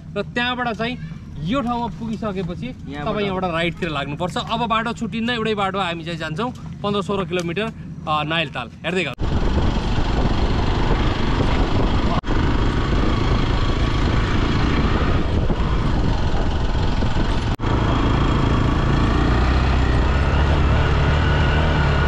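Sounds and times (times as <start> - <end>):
motorcycle engine running: 0.0 - 22.0
wind noise on microphone: 9.2 - 17.6.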